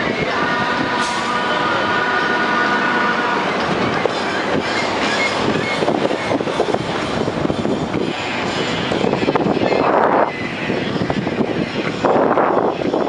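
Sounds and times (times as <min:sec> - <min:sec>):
train rattling rumble: 0:00.0 - 0:13.0
train wheels squealing: 0:00.9 - 0:10.6.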